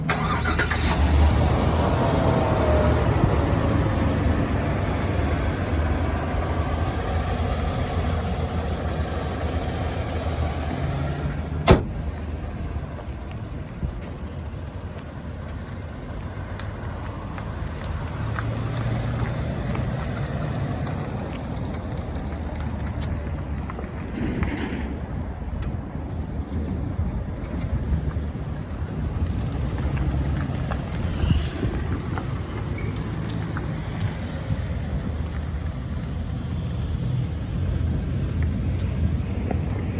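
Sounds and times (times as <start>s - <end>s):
pickup engine idling: 0.1s - 23.9s.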